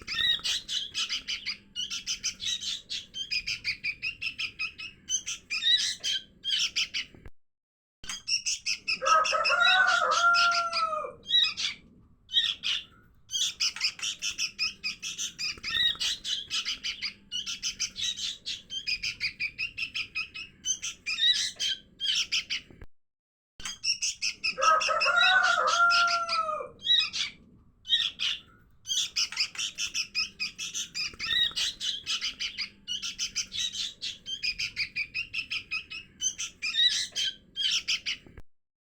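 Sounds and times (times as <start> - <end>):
bulbuls chattering chirps: 0.0 - 7.1, 8.3 - 22.7, 23.8 - 38.2.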